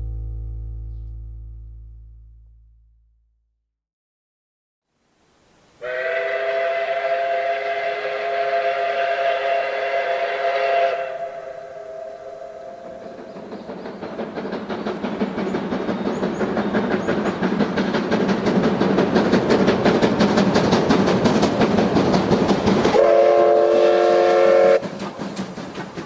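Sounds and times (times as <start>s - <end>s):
multi-tone train horn blast: 5.8s - 12.4s, 22.9s - 24.8s
train wheels clattering over rail joints: 13.1s - 23.6s, 24.4s - 26.0s.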